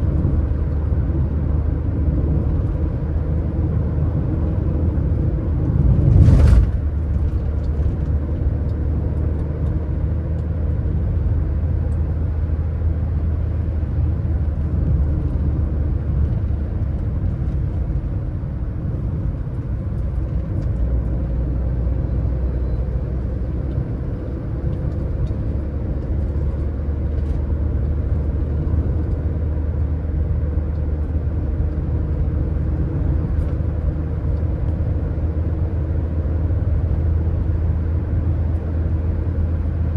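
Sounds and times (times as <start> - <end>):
car tyres and engine rumble: 0.0 - 39.9.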